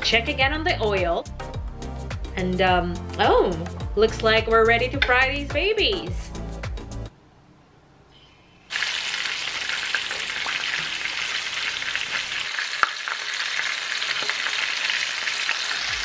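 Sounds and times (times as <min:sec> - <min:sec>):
shrimp sizzling in deep oil: 0:08.7 - 0:16.0.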